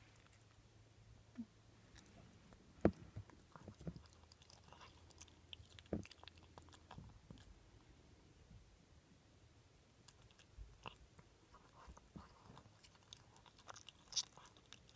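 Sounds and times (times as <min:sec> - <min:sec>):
pet crunching food: 0:00.0 - 0:00.6, 0:01.9 - 0:07.6, 0:10.0 - 0:14.9.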